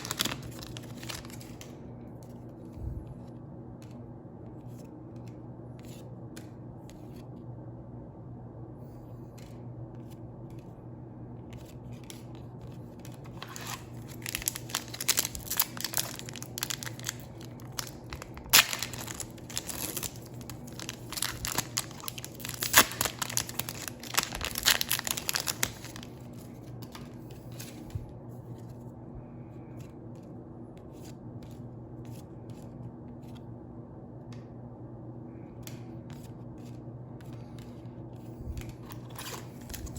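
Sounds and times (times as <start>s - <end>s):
foil wrapper tearing and crinkling: 0.0s - 1.7s, 13.0s - 27.1s
steady low hum: 0.0s - 39.9s.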